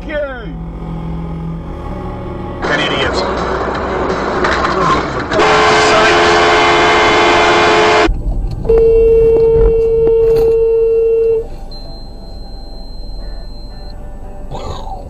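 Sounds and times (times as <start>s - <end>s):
single-note car horn: 5.4s - 8.1s, 8.7s - 14.4s
two-note car horn: 5.4s - 8.1s, 8.7s - 14.4s.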